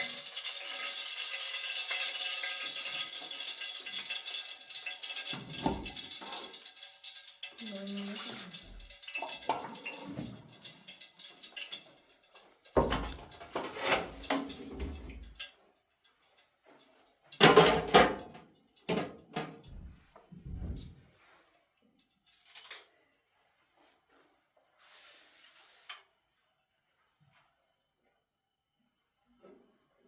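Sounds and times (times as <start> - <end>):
water splashing and sloshing: 18.9 - 21.7.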